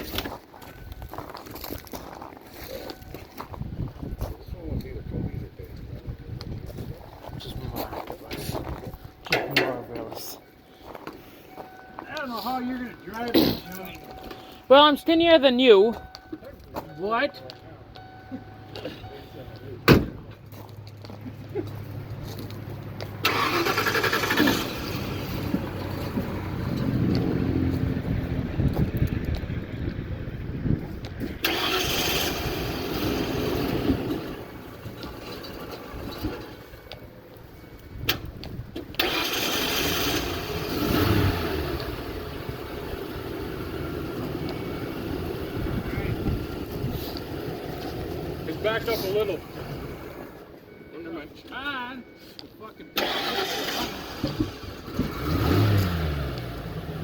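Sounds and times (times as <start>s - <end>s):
pickup engine starting and running: 0.0s - 57.0s
starter motor cranking: 23.2s - 25.1s, 31.4s - 33.2s, 38.9s - 40.9s, 53.0s - 55.5s
pickup engine running and revving: 23.9s - 36.6s, 38.9s - 48.8s, 53.9s - 57.0s.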